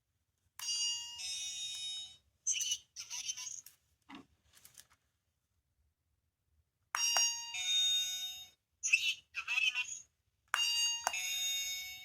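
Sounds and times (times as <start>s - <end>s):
electronic toy chime: 0.6s - 3.6s, 7.0s - 9.2s, 10.6s - 12.0s.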